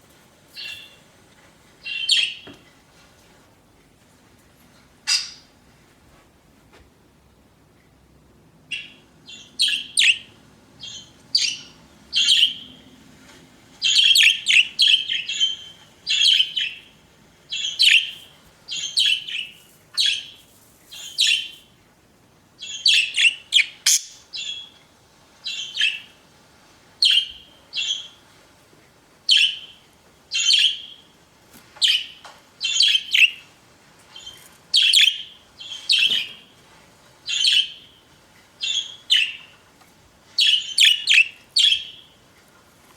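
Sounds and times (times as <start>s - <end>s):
budgerigars chirping: 8.7s - 12.8s, 13.8s - 16.9s, 17.5s - 20.4s, 21.0s - 21.6s, 22.6s - 24.7s, 25.4s - 26.1s, 27.0s - 28.2s, 29.3s - 31.0s, 31.8s - 33.5s, 34.2s - 36.4s, 37.3s - 37.9s, 38.6s - 39.5s, 40.4s - 42.1s.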